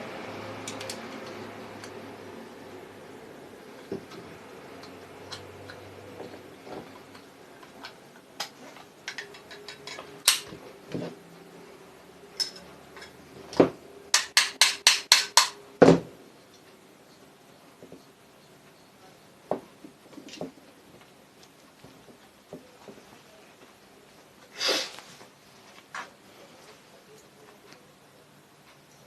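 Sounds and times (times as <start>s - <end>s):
small metal clicks and knocks: 0.6s - 2.0s, 3.9s - 11.0s, 12.4s - 13.2s
tapping on motor parts: 3.9s - 11.1s, 12.4s - 16.1s.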